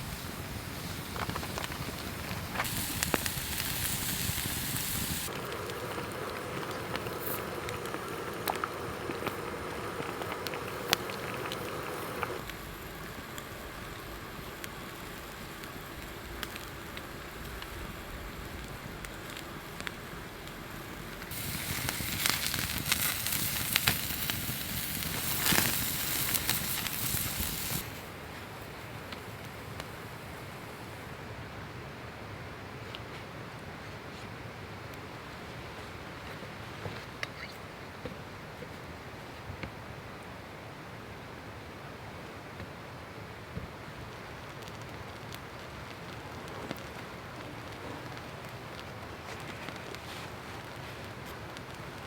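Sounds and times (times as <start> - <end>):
campfire crackling and popping: 0.0 - 31.0, 43.7 - 52.0.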